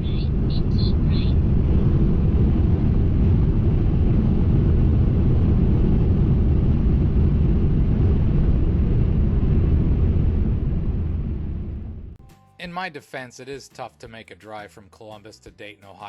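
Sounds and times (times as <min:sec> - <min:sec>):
road and engine rumble inside cab: 0:00.0 - 0:07.2.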